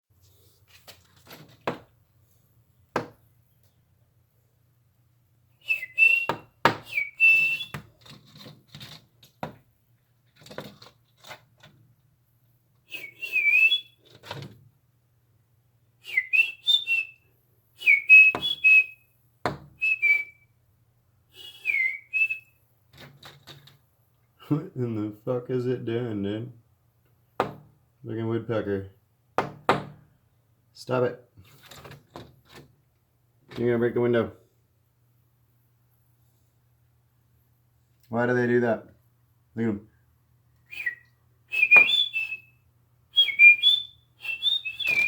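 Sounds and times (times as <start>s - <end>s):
woodpecker knocking on glass: 2.9s - 3.2s, 27.4s - 27.8s, 29.4s - 30.0s
high whistle-like bird chirps: 5.6s - 7.8s, 12.9s - 14.0s, 16.0s - 17.2s, 17.8s - 19.1s, 19.8s - 20.5s, 21.4s - 22.6s, 40.7s - 45.0s.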